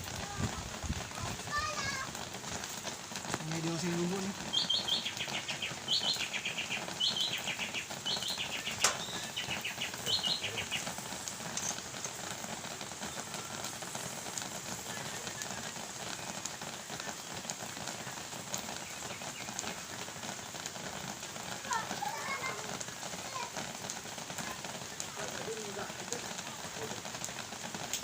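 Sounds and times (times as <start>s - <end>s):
crackling hiss: 0.0s - 28.0s
bird calling: 4.1s - 11.8s.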